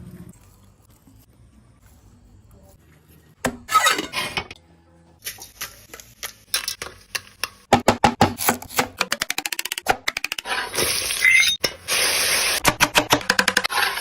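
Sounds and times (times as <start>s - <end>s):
dishes and utensils clinking: 3.7s - 4.6s.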